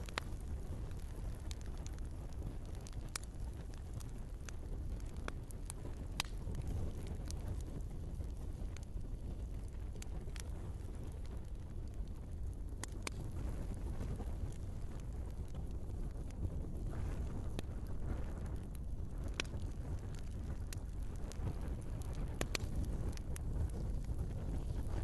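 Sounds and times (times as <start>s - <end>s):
low rumble of flames: 0.0s - 25.0s
wood fire crackling and popping: 0.0s - 25.0s.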